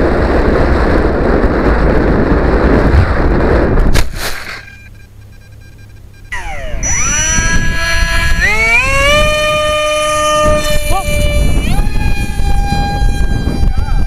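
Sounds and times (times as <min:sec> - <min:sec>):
wind buffeting microphone: 0:00.0 - 0:04.2, 0:06.3 - 0:14.0
electric motor whine: 0:06.3 - 0:14.0.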